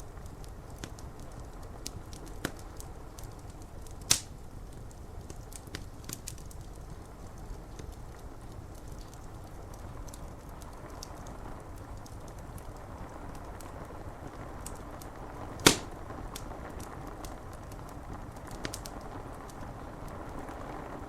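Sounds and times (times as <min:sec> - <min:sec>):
wood fire crackling: 0:00.0 - 0:21.0
rain on window glass: 0:00.1 - 0:21.0
loud fire pop: 0:15.6 - 0:16.0.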